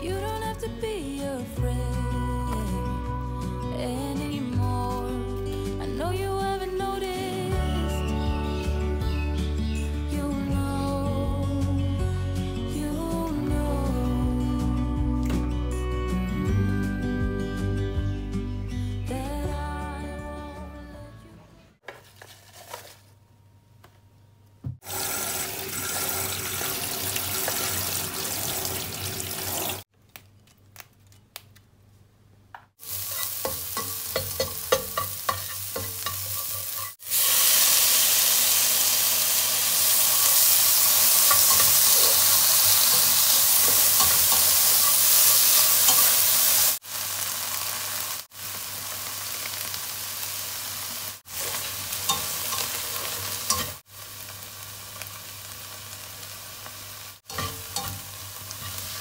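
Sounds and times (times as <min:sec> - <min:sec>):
food sizzling in hot oil: 0:24.8 - 0:29.9, 0:32.8 - 0:59.0
spatula scraping and tapping pan: 0:33.0 - 0:37.0, 0:41.2 - 0:46.1, 0:57.3 - 0:59.0.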